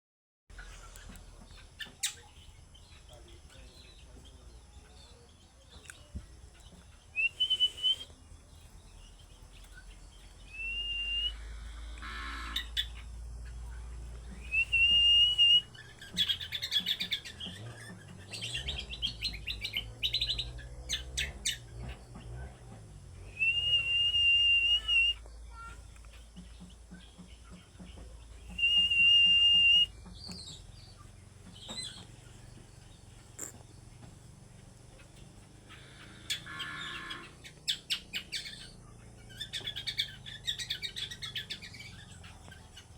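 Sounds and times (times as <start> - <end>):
bird whistles and chattering: 7.1 - 8.2, 10.4 - 11.6, 14.4 - 21.6, 23.3 - 25.7, 28.4 - 30.6, 37.2 - 42.9.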